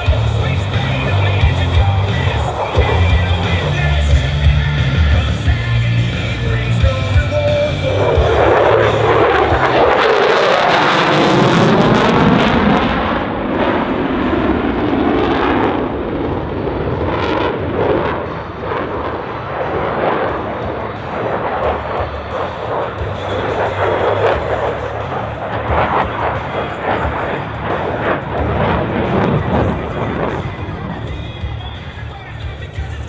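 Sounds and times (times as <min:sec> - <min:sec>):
jet engine with ragged crackle: 0:07.8 - 0:32.8.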